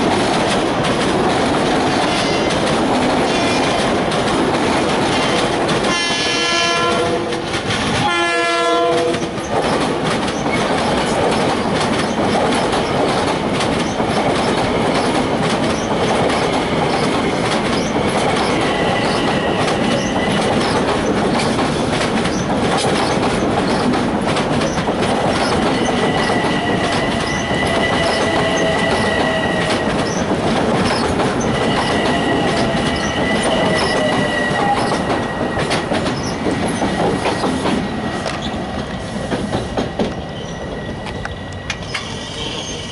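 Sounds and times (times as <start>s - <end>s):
wheels clicking over rail joints: 0.0s - 8.1s, 8.8s - 42.1s
train passing rumble: 0.0s - 42.9s
high wheel squeal: 25.4s - 30.3s, 30.9s - 35.6s, 40.3s - 42.9s.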